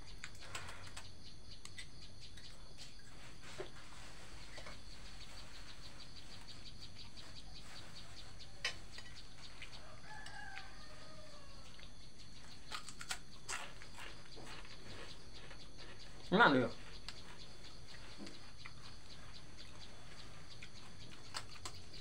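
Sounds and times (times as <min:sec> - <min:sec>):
rooster crowing faintly: 0:09.7 - 0:11.9.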